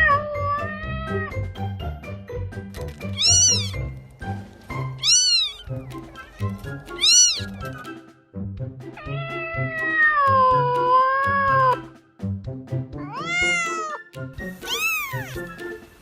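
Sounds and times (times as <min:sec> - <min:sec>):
cat meowing: 0:00.0 - 0:01.3, 0:03.2 - 0:03.8, 0:05.0 - 0:07.6, 0:09.0 - 0:11.8, 0:13.1 - 0:14.0, 0:14.6 - 0:15.5
background music: 0:00.0 - 0:16.0.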